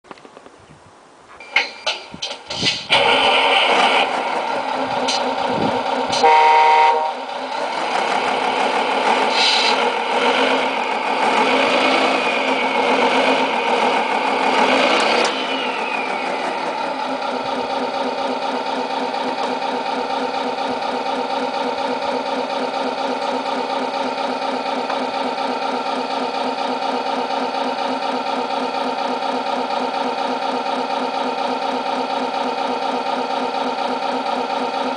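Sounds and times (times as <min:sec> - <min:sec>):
simulated diesel truck engine: 0:00.2 - 0:34.9
truck horn blast: 0:06.1 - 0:07.3.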